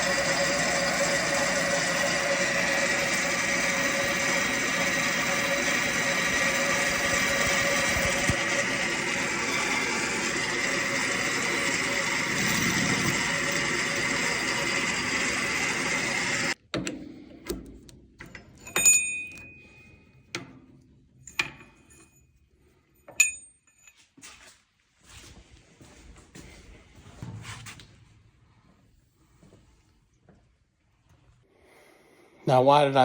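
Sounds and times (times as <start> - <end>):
metal lathe cutting: 0.0 - 16.6
metallic clinks: 23.0 - 24.1.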